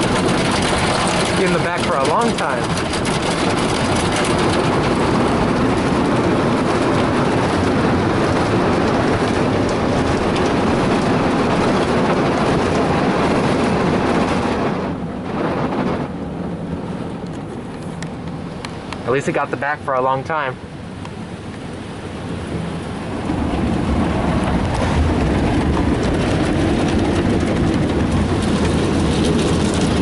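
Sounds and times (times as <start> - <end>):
car wash brushes and water rushing: 0.0 - 30.0.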